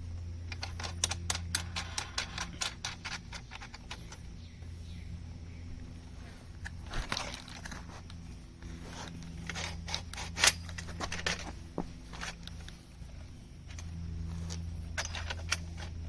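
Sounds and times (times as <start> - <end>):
metal parts clicking and knocking: 0.4 - 4.3, 9.1 - 12.8, 13.7 - 16.0.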